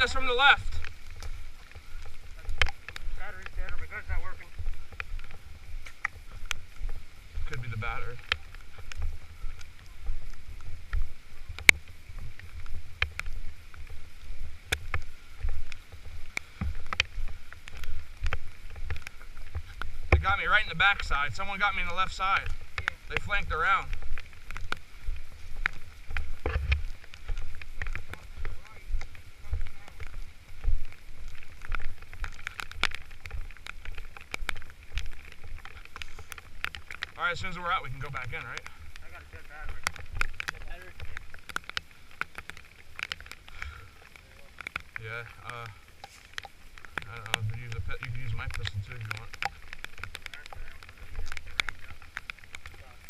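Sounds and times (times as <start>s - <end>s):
raindrops ticking on gear: 0.0s - 53.0s
wind against microphone: 0.0s - 53.0s
low thumps of movement: 44.6s - 52.8s.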